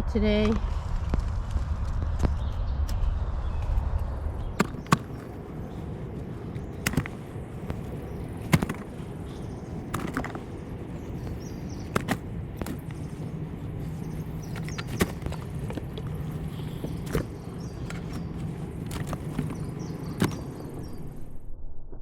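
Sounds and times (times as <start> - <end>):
twigs snapping: 3.6 - 21.0.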